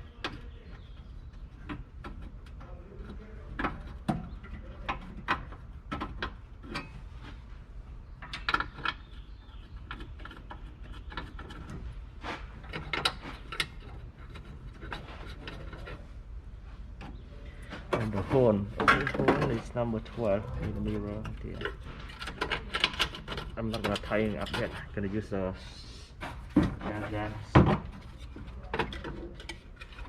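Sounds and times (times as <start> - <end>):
hand tools clicking and clanking: 8.2 - 16.0, 17.0 - 25.0, 26.2 - 30.0.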